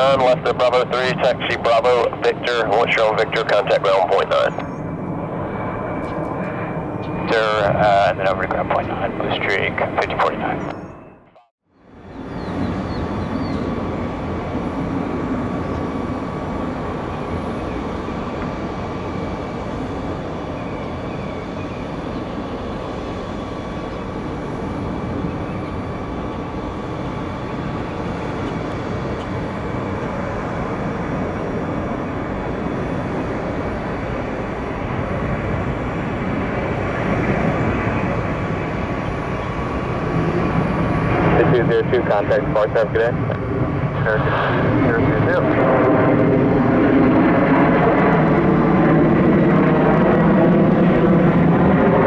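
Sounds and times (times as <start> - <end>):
jet engines rumbling and whining: 0.0 - 52.0.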